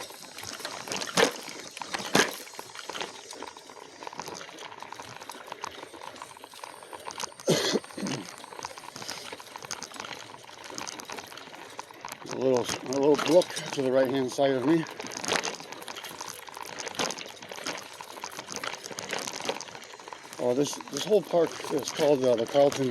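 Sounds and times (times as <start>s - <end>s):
bike knocking over roots: 0.0s - 22.9s
bike tyres rustling and rattling: 0.0s - 22.9s.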